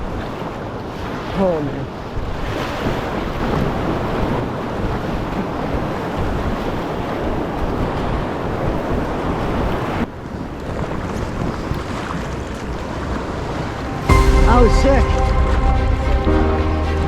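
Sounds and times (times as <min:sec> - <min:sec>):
wind buffeting microphone: 0:02.2 - 0:14.9
rushing whitewater: 0:10.4 - 0:17.0.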